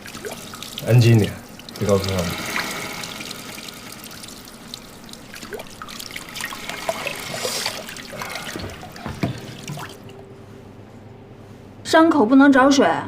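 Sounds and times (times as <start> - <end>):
tap water splashing into sink: 0.0 - 10.1.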